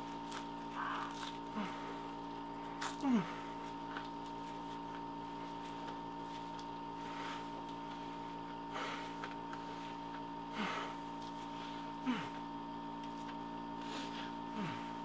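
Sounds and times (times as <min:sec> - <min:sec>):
crunchy chewing: 0:00.0 - 0:08.6
steady electrical hum: 0:00.0 - 0:15.0.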